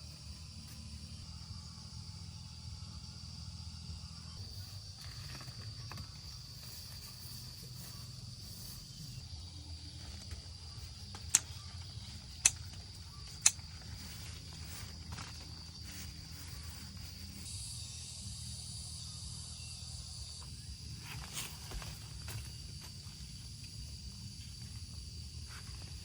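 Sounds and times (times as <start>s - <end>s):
insects chirring: 0.0s - 26.0s
sharp clicks: 11.1s - 11.6s, 12.4s - 13.6s.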